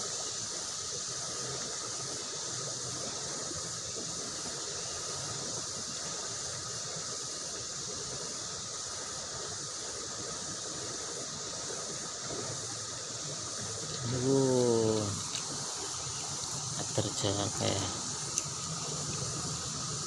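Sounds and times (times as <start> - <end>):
high buzz of insects: 0.0 - 20.0
fast-flowing river rushing: 13.5 - 20.0.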